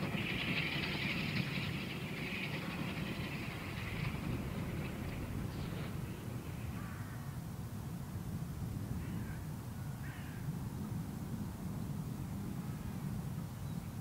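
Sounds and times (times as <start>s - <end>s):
low outdoor rumble: 0.0s - 14.0s
caw-like bird calls: 6.7s - 7.4s, 9.0s - 10.5s.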